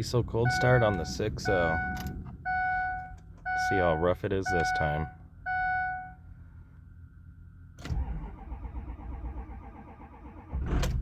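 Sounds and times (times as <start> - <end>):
diesel engine starting rough: 7.8 - 11.0.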